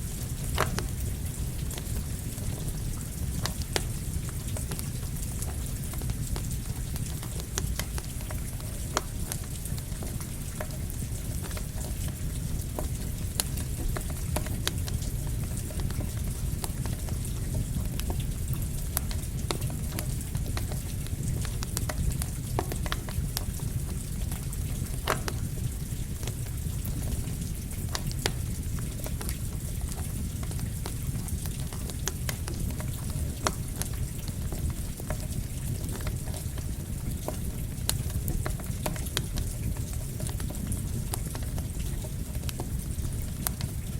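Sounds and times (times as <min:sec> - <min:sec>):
campfire crackling and popping: 0:00.0 - 0:43.9
rain hissing: 0:00.0 - 0:43.9.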